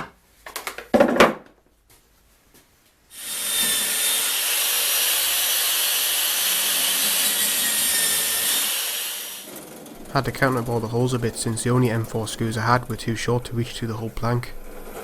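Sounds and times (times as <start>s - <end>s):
power drill boring into plywood: 3.1s - 9.6s.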